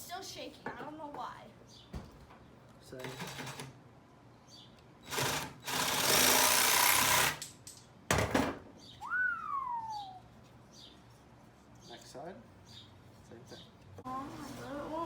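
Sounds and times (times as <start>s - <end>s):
jigsaw cutting wood: 5.1s - 7.4s.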